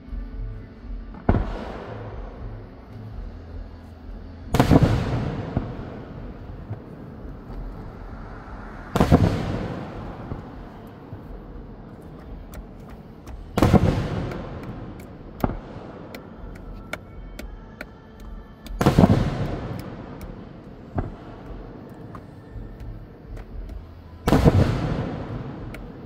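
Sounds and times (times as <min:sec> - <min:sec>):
firework pops and crackling: 0:01.1 - 0:03.0, 0:04.5 - 0:26.0
firework shells booming: 0:04.5 - 0:17.6, 0:18.6 - 0:26.0.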